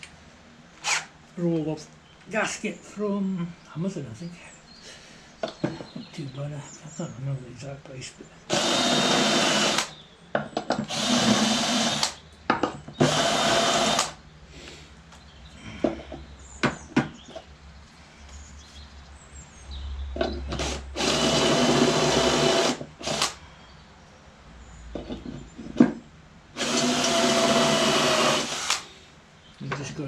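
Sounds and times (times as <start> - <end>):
electric drill running: 8.5 - 9.9, 10.9 - 12.2, 13.0 - 14.2, 20.5 - 23.4, 26.6 - 28.9.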